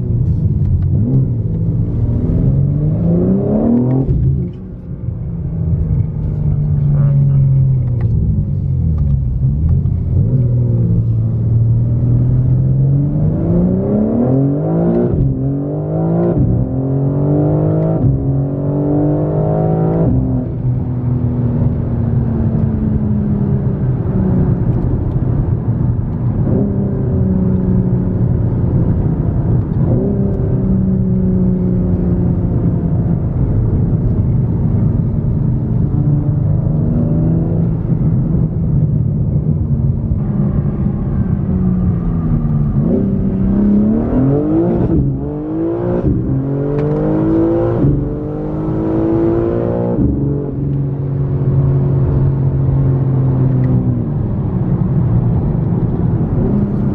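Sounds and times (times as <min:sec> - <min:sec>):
car engine accelerating: 0:00.0 - 0:56.9.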